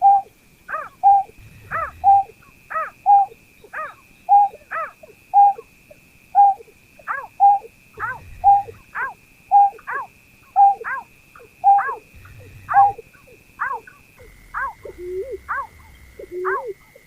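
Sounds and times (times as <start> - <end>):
faint high whine: 0.0 - 17.0
bird two-part call: 6.4 - 16.8.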